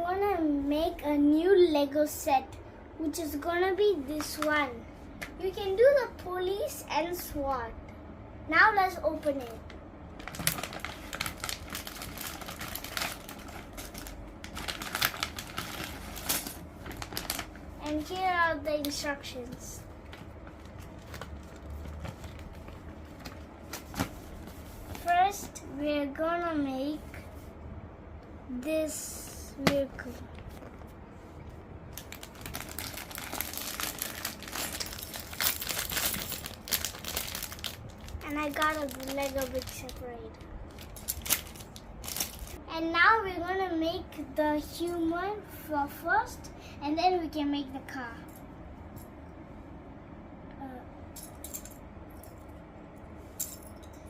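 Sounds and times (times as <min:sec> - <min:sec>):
plastic bag crinkling: 0:10.2 - 0:18.2, 0:31.9 - 0:42.6.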